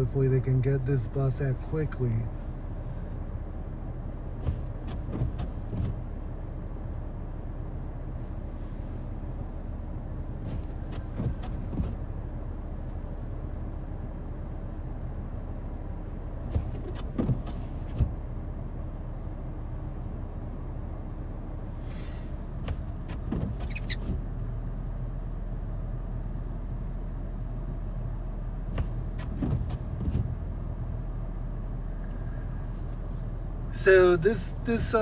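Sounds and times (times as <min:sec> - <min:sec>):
vehicle engine idling: 0:00.0 - 0:35.0
knocks and clunks: 0:16.4 - 0:18.3, 0:28.7 - 0:30.4.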